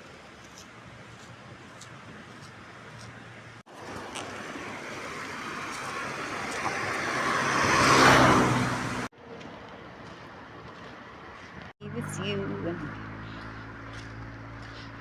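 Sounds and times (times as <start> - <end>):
vehicle passing by: 3.7 - 10.2, 10.8 - 15.0.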